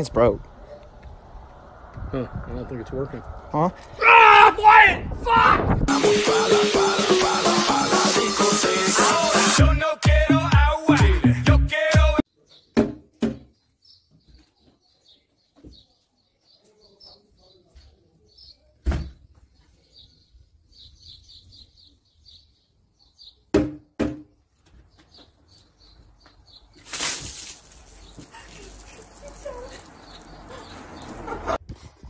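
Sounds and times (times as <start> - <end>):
dance music with a beat: 5.9 - 12.2
small bird chirping: 19.4 - 23.5, 27.9 - 31.2
sharp knocks: 23.5 - 24.3.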